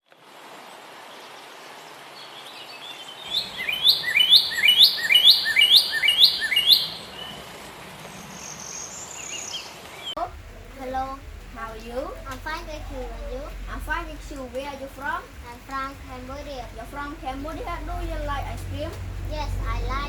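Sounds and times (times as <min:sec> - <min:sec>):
steady background hiss: 0:00.1 - 0:20.0
bird chirping: 0:02.2 - 0:07.4.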